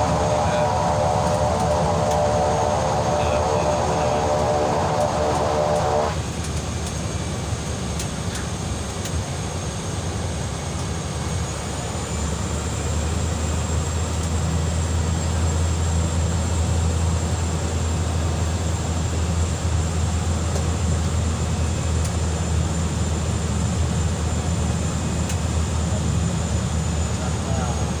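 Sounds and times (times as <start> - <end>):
thin high whine: 0.0 - 6.2
propeller plane cabin drone: 0.0 - 28.0.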